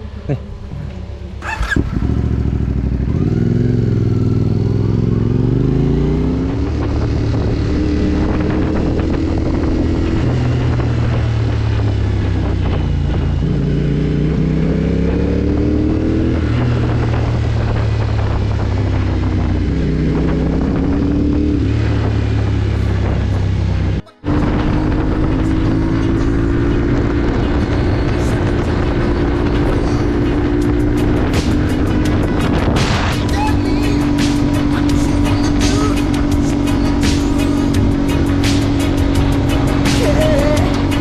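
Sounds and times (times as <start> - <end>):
motorcycle engine accelerating: 0.6 - 41.0.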